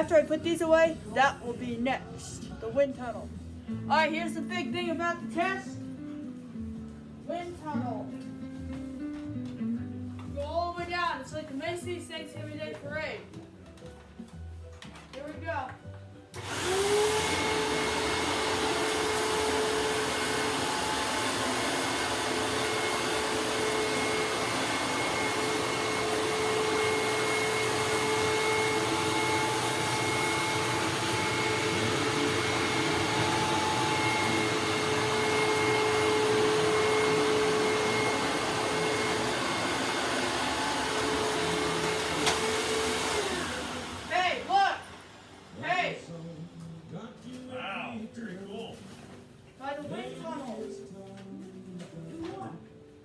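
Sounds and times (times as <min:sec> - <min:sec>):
vacuum cleaner motor whine: 0:16.4 - 0:45.6.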